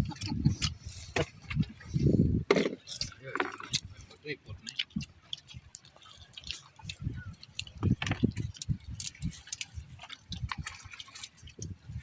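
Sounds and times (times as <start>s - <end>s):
person chewing food: 2.5s - 12.0s.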